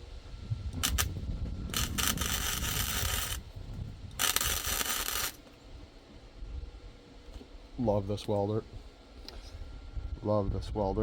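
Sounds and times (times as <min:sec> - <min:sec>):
welding arc crackle: 0:00.7 - 0:03.5, 0:04.1 - 0:05.5.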